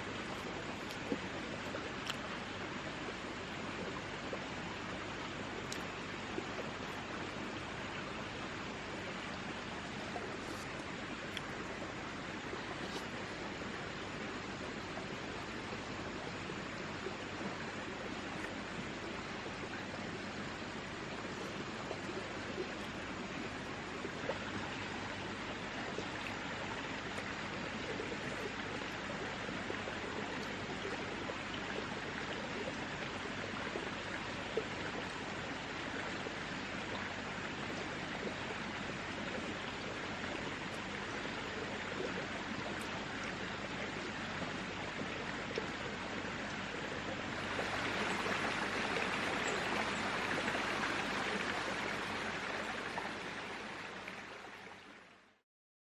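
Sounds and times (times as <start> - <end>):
rushing stream water: 0.0 - 55.4
louder hissy water rush: 5.4 - 17.4, 45.9 - 54.7.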